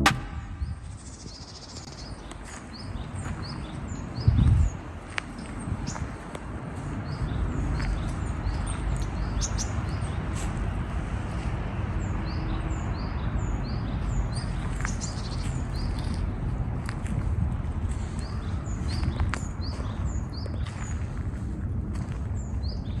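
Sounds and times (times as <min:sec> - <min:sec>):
steady low rumble: 0:00.0 - 0:12.1, 0:15.4 - 0:23.0
small birds chirping: 0:00.4 - 0:06.2, 0:07.0 - 0:10.7, 0:12.0 - 0:16.4, 0:18.0 - 0:21.2.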